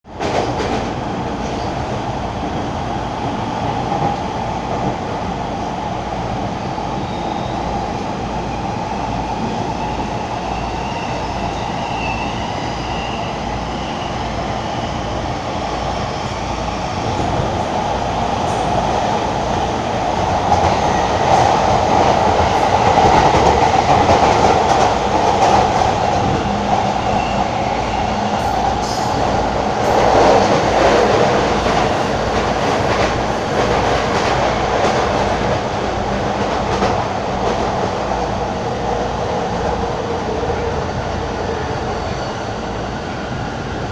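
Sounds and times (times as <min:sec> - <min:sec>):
train wheels rumbling on rails: 0:00.1 - 0:43.9.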